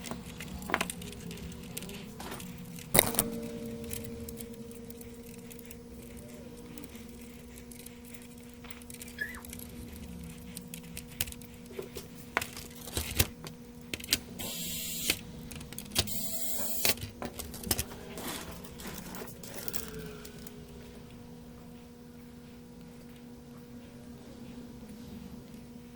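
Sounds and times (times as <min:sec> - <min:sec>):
parts and tools clattering: 0:00.0 - 0:14.2, 0:15.5 - 0:20.6
faint electrical hum: 0:00.0 - 0:25.9.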